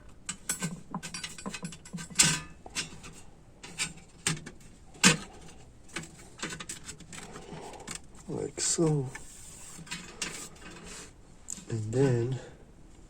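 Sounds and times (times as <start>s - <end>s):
metal parts clicking and knocking: 0.0s - 8.1s.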